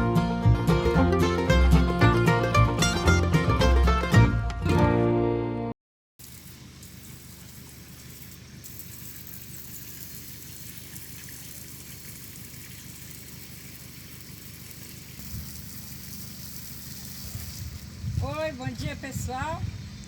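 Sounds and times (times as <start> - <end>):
hose water spraying on bricks: 6.2 - 20.0.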